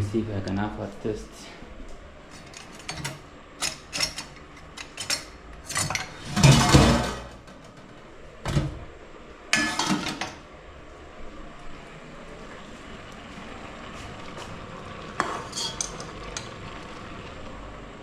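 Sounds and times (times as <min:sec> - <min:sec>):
metal utensils scraping a pot: 0:02.3 - 0:07.3, 0:15.2 - 0:16.5.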